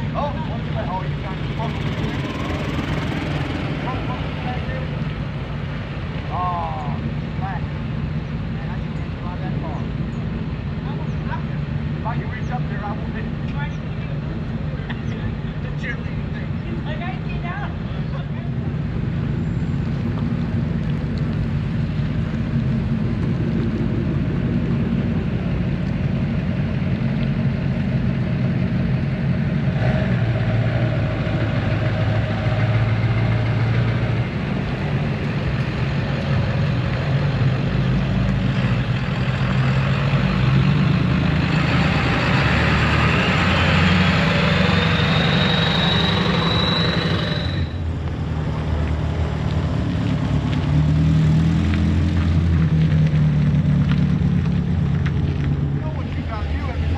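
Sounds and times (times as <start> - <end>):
truck engine rumbling: 0.0 - 56.9
high whistle rising in pitch: 44.6 - 47.8.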